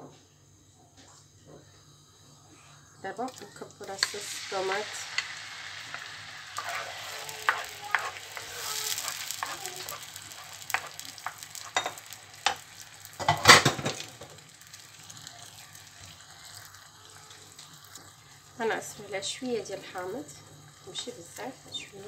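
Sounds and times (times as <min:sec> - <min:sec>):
tomato sizzling in hot oil: 0:03.0 - 0:22.0
wooden spoon scraping a pan: 0:05.9 - 0:12.6.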